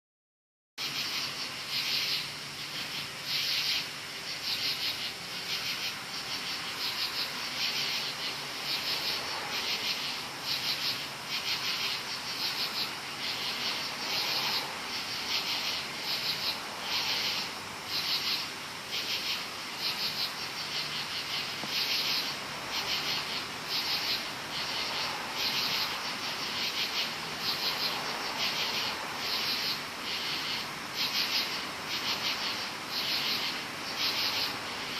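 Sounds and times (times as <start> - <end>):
continuous high trill: 0.8 - 34.9
crickets chirping: 0.8 - 34.9.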